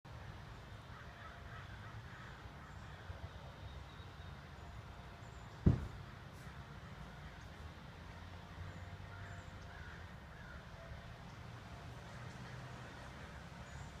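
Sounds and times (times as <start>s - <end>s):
dull thump: 5.6s - 6.0s.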